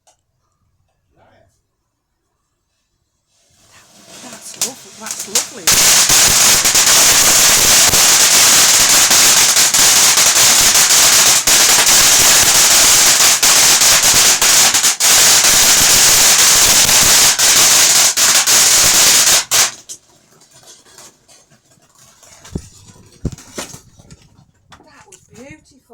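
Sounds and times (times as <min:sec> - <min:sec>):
fireworks crackling: 0:03.4 - 0:21.2, 0:22.4 - 0:23.9.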